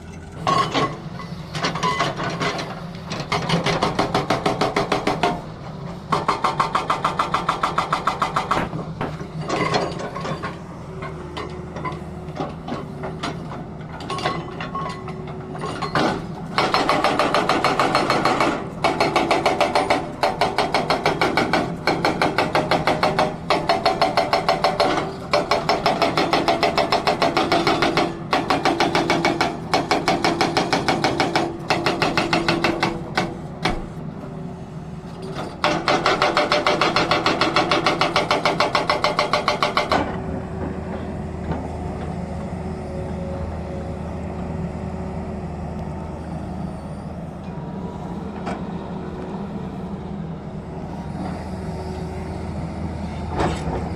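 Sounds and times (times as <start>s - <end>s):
hydraulic breaker hammering rock: 1.6s - 33.9s, 35.3s - 40.8s
diesel engine running: 39.7s - 53.9s.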